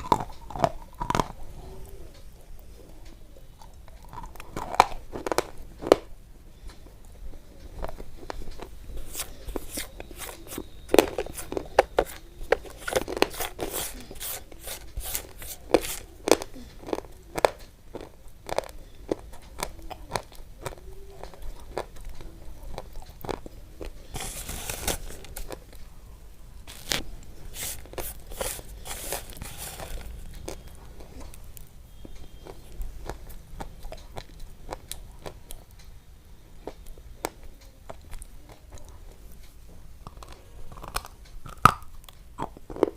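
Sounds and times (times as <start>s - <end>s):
crunching and chewing: 0.0s - 26.0s, 26.6s - 42.9s.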